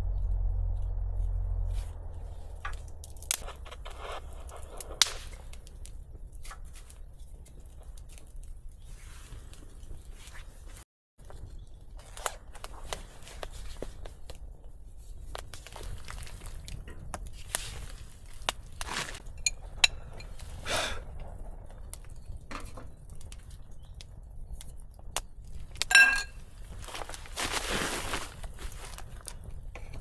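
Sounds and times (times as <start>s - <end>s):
ringing metal clink: 25.9s - 26.3s.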